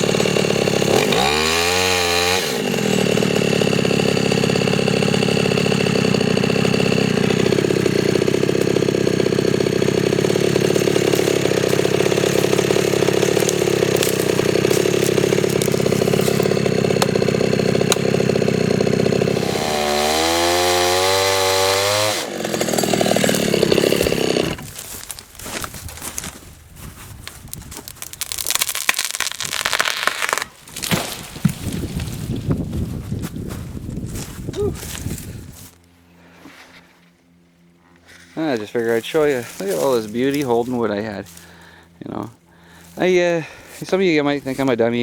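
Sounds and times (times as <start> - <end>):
chainsaw cutting: 0.0 - 26.4, 27.0 - 45.0
crackling and snapping: 10.0 - 18.2, 27.1 - 32.4.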